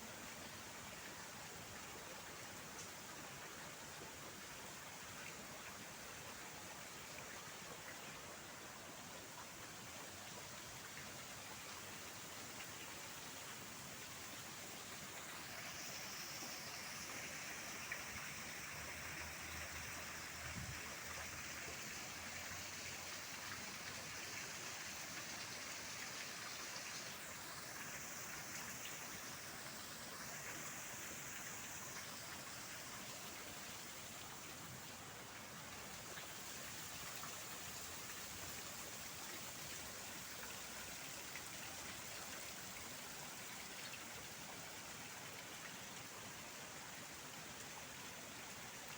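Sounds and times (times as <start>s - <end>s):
faint rushing water: 0.0s - 48.9s
thin high-pitched hiss: 12.6s - 34.5s.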